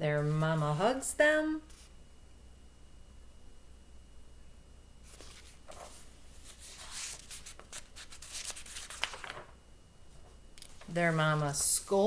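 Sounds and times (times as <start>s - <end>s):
paper pages rustling: 5.0s - 9.6s, 10.2s - 12.0s.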